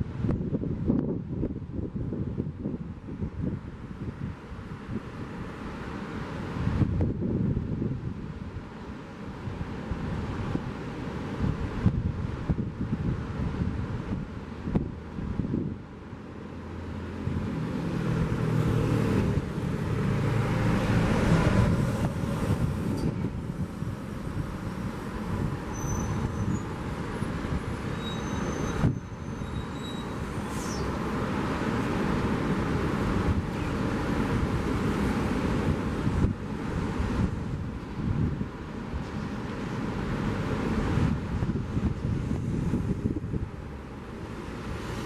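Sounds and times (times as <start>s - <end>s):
wind: 0.0s - 45.0s
vehicle driving past: 16.5s - 23.0s.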